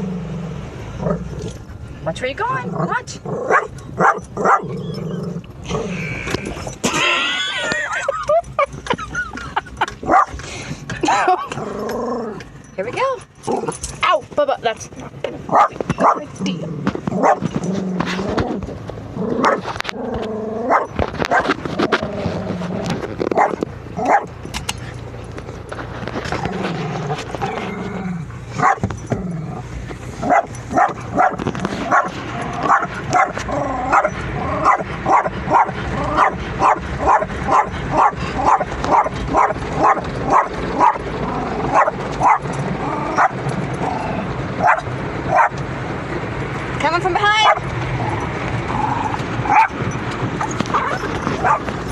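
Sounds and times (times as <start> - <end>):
dog barking: 3.5 - 4.7, 10.1 - 10.4, 15.5 - 16.3, 17.2 - 17.4, 19.4 - 19.6, 20.7 - 21.5, 23.4 - 24.3, 28.6 - 28.8, 30.2 - 41.0, 41.7 - 42.5, 43.2 - 43.4, 44.6 - 45.6, 47.4 - 47.6, 49.5 - 49.8, 50.7 - 51.7
dog whining and whimpering: 4.1 - 7.3, 50.4 - 51.7.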